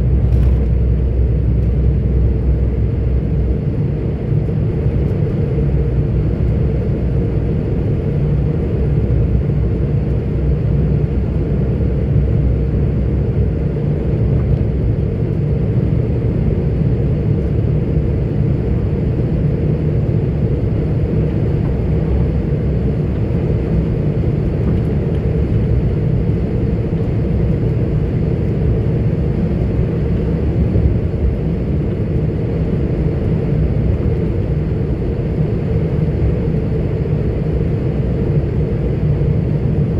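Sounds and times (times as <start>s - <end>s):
truck diesel engine drone: 0.0s - 39.8s.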